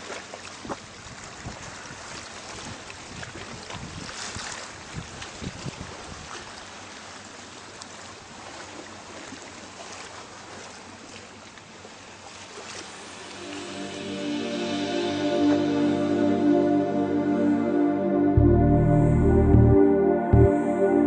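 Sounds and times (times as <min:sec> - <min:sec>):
wind: 0:00.0 - 0:19.4
sea water rushing: 0:06.0 - 0:18.4
low thumps: 0:14.0 - 0:20.6.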